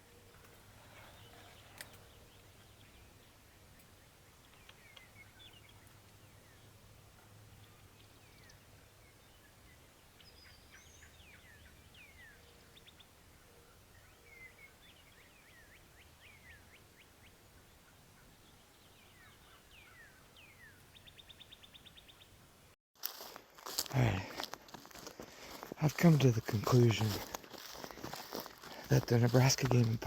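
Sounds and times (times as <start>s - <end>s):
faint songbirds chirping: 0.0s - 30.0s.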